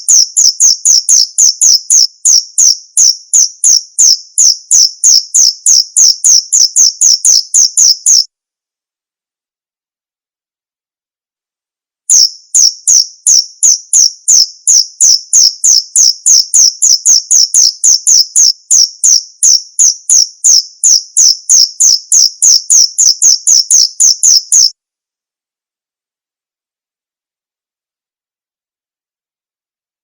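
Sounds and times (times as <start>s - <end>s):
cricket chirping: 0.0s - 8.3s, 12.1s - 24.7s.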